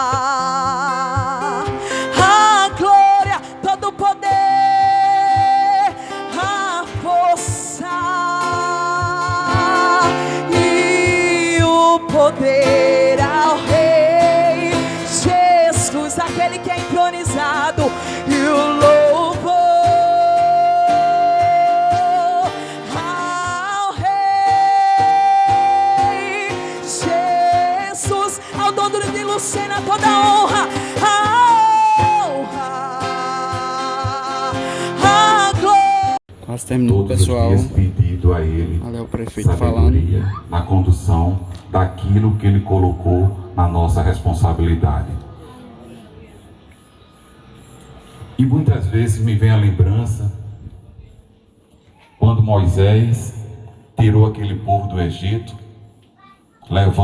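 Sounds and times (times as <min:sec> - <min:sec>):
instrumental backing: 0:00.0 - 0:36.2.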